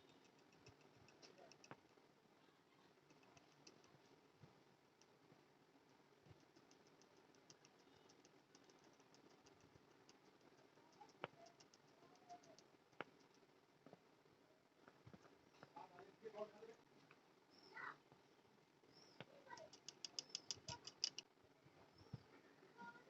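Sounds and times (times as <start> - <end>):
light ticks: 0.0 - 2.0, 3.1 - 4.0, 6.3 - 13.4, 19.2 - 21.2
sharp clicks: 0.0 - 2.0, 3.1 - 4.0, 6.4 - 13.4, 19.2 - 21.3.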